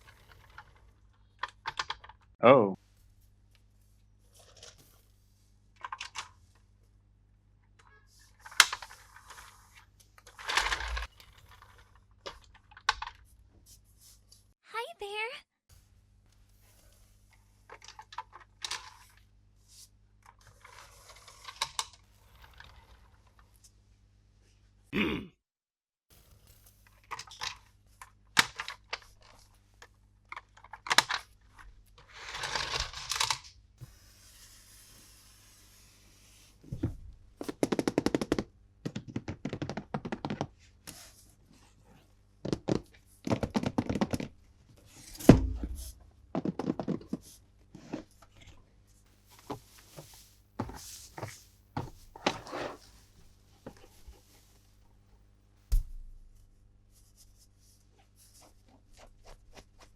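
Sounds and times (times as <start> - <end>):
heavy thump: 45.2 - 46.0, 55.7 - 56.2.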